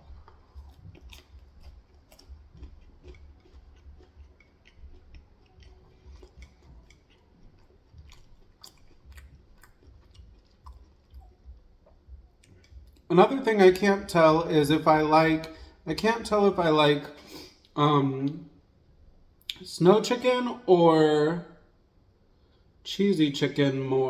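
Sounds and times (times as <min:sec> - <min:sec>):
person chewing food: 0:00.0 - 0:17.8.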